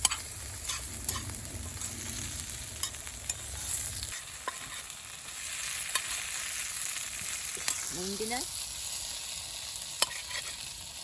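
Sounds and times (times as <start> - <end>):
campfire crackles and pops: 0.0 - 11.0
food sizzling: 0.0 - 11.0
low rumble: 0.4 - 4.1.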